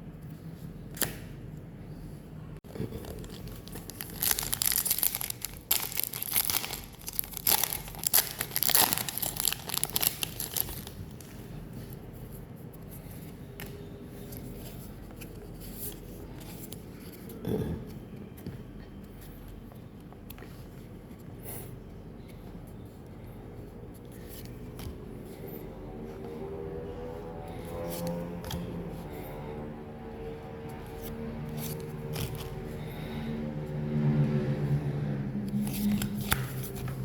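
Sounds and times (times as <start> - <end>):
foil wrapper tearing and crinkling: 3.0 - 11.0.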